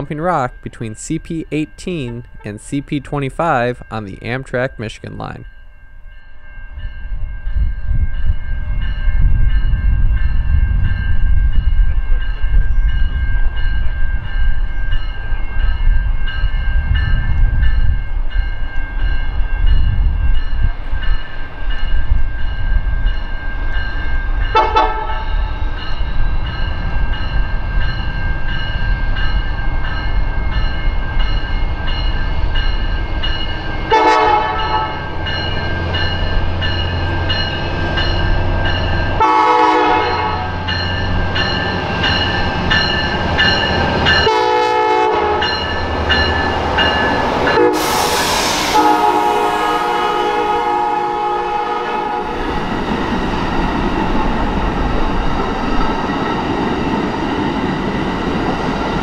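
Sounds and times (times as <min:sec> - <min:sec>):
diesel locomotives rumbling: 0:00.0 - 0:59.0
train horn blasts: 0:24.5 - 0:25.4, 0:33.9 - 0:35.1, 0:39.2 - 0:40.6, 0:44.2 - 0:45.6, 0:47.5 - 0:52.4.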